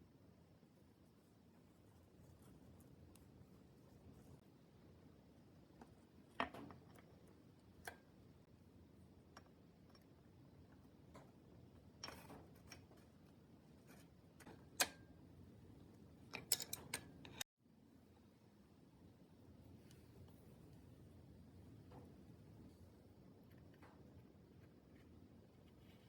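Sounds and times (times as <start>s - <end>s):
light clicks and taps of tools: 5.8s - 8.1s, 9.3s - 15.0s, 15.9s - 17.4s.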